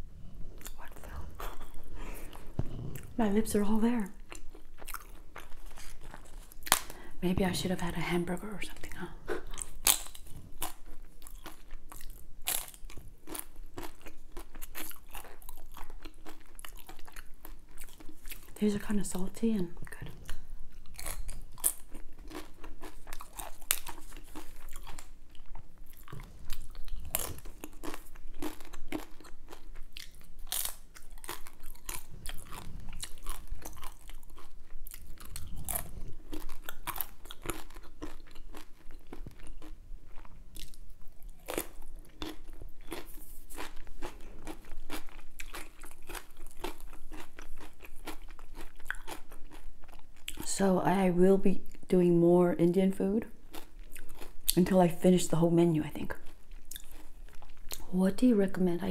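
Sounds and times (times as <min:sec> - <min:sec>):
person crunching snack food: 0:04.1 - 0:07.0, 0:09.4 - 0:18.6, 0:20.2 - 0:50.5, 0:53.5 - 0:54.6, 0:56.2 - 0:57.8.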